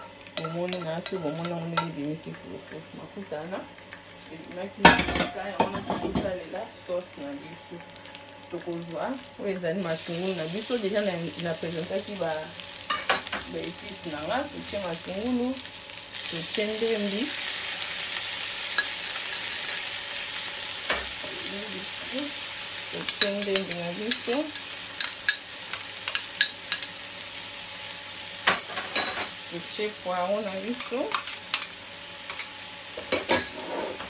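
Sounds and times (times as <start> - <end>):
spoon stirring a pan: 0.0 - 2.0, 23.0 - 27.0, 30.4 - 34.0
onions sizzling in oil: 0.0 - 34.0.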